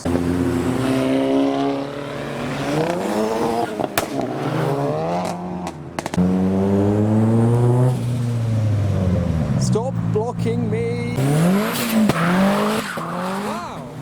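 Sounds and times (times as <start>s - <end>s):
car engine revving through gears: 0.0s - 14.0s
sharp engine cracks: 2.5s - 6.3s
deep engine note: 6.2s - 11.5s.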